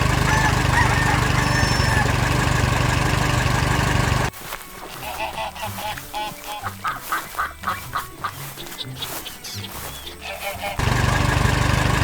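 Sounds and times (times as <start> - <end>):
repeated animal calls: 0.0 - 2.4, 4.9 - 10.8
loud machine noise: 0.0 - 4.3, 10.8 - 12.0.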